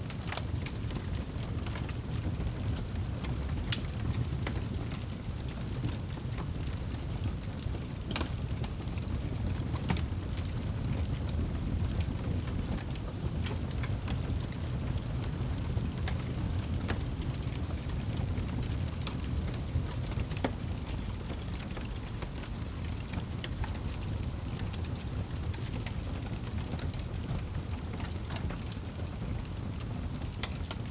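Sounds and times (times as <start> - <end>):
fire crackling: 0.0 - 30.9
steady rain: 0.0 - 30.9.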